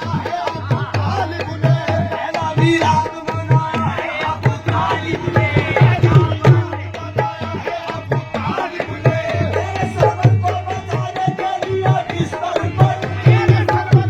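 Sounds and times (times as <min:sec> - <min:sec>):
dholak fast beat: 0:00.0 - 0:14.0.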